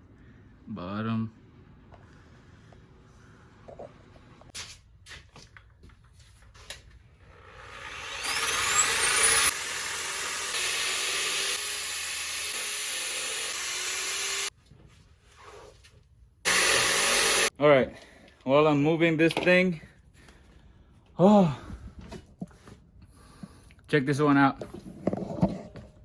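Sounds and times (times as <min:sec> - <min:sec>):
electric power tool motor whining: 0:07.3 - 0:14.5, 0:16.5 - 0:17.5.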